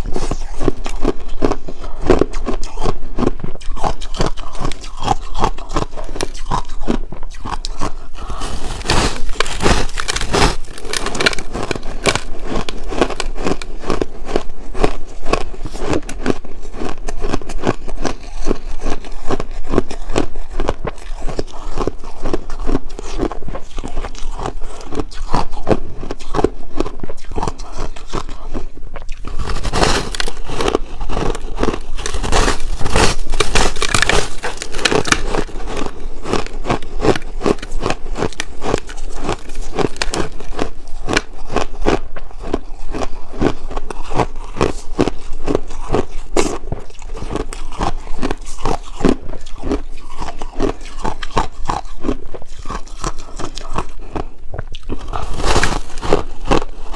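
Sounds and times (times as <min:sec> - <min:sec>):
ice being chewed: 0:00.0 - 0:56.9.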